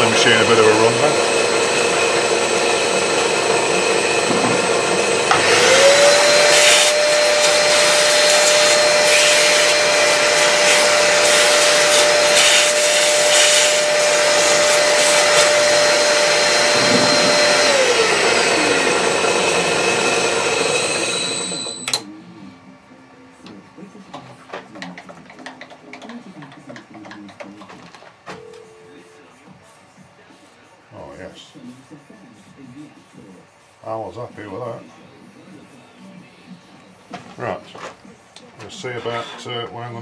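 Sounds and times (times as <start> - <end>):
milling machine whirring: 0.0 - 22.1, 38.7 - 39.6.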